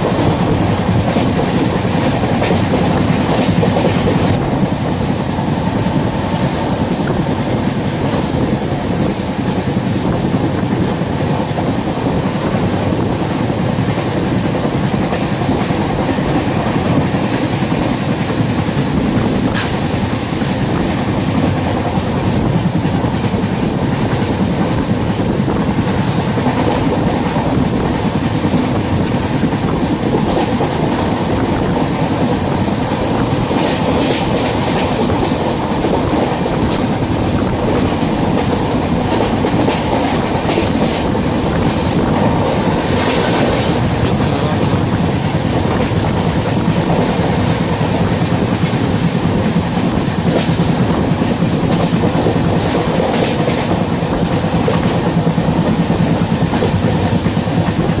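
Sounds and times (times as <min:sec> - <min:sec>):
train wheels rumbling on track: 0:00.0 - 0:58.0
wheels clicking over rail joints: 0:13.8 - 0:58.0.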